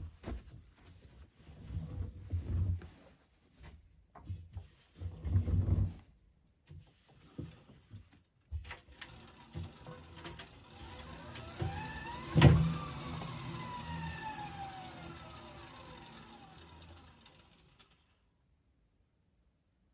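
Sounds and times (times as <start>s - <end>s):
washing machine motor whining: 9.0s - 18.1s.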